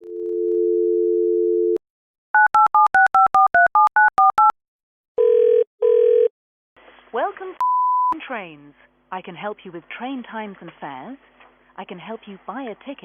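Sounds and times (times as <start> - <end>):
touch-tone keypad beeps: 2.4 - 4.5
double-burst phone ringing tone: 5.2 - 6.3.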